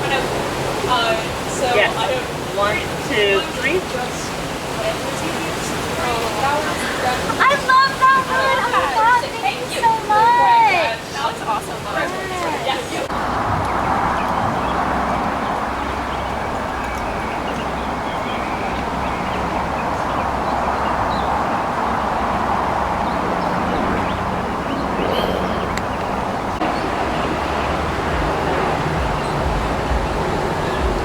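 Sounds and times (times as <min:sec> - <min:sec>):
crowd murmur: 0:24.9 - 0:31.0.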